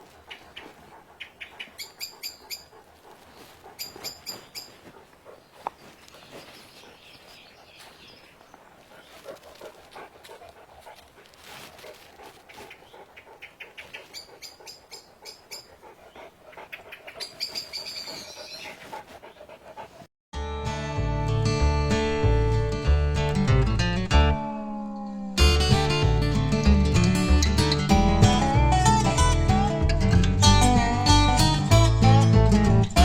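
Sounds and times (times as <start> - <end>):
dog panting: 0.0 - 20.1
bird high repeated calls: 0.3 - 2.7.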